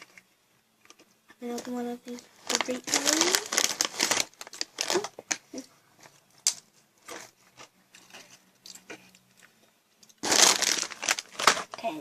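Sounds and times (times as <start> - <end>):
chips being crunched and chewed: 2.5 - 5.4, 10.0 - 11.8.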